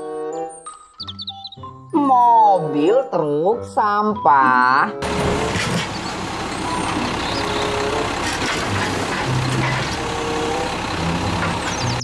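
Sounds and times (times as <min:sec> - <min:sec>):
garbage truck engine: 0:05.0 - 0:12.0
hydraulic arm whining: 0:05.0 - 0:12.0.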